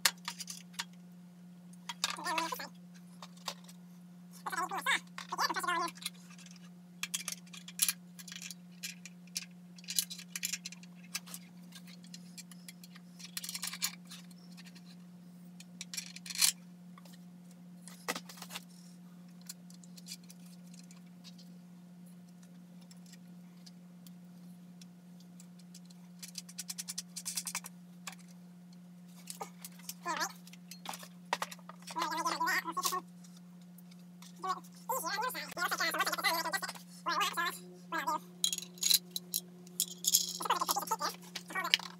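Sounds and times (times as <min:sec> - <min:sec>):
steady low hum: 0:00.0 - 0:41.9
metal hardware clinking: 0:38.4 - 0:40.5.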